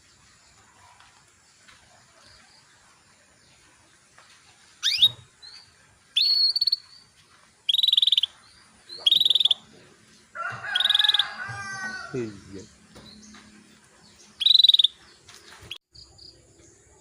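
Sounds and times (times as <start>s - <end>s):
canary calling: 4.8s - 5.3s, 6.1s - 7.0s, 7.6s - 9.8s, 10.6s - 12.0s, 14.3s - 15.0s.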